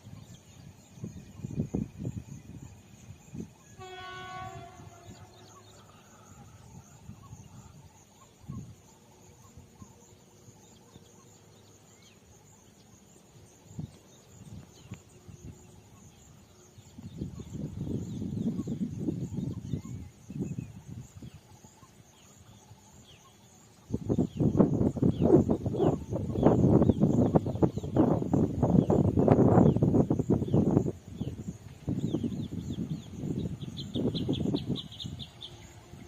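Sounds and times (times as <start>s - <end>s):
locomotive horn: 3.8s - 5.6s.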